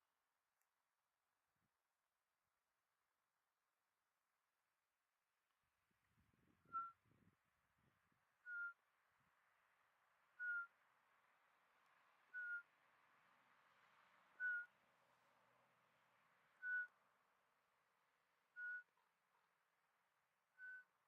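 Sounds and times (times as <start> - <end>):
owl whistled notes: 8.5 - 8.8, 10.4 - 10.7, 12.4 - 12.6, 14.4 - 14.7, 16.6 - 16.9, 18.6 - 18.9, 20.6 - 20.9.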